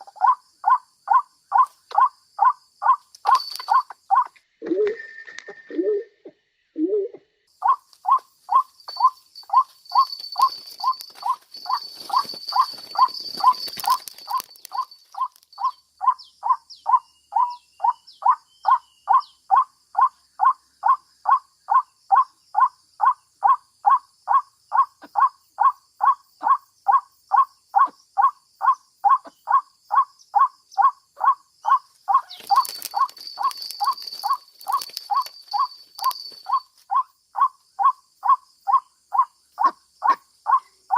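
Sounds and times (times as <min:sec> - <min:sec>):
rustling: 0:07.9 - 0:15.7, 0:32.1 - 0:36.9.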